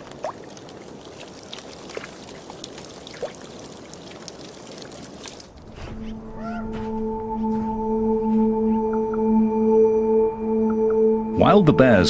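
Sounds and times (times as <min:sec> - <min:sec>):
water drips and plops: 0:00.0 - 0:05.7
water trickling: 0:00.0 - 0:05.8.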